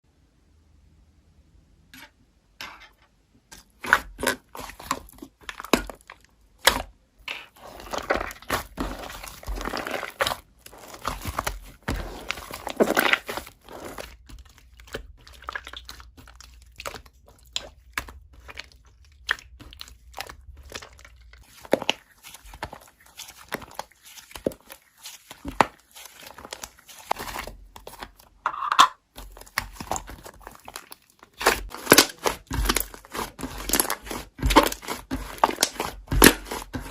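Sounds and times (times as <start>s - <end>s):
slime squished by hand: 3.7s - 28.4s, 29.1s - 36.9s.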